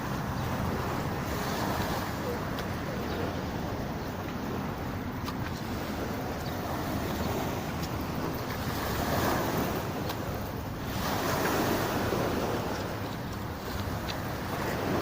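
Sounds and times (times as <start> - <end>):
sea waves washing ashore: 0.0 - 15.0.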